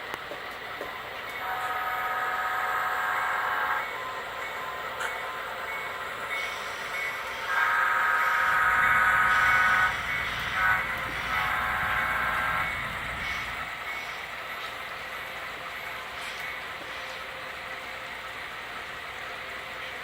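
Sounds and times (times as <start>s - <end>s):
locomotive engines and train rumble: 0.0s - 20.0s
locomotive air horn blasts: 7.5s - 10.0s, 10.6s - 13.0s.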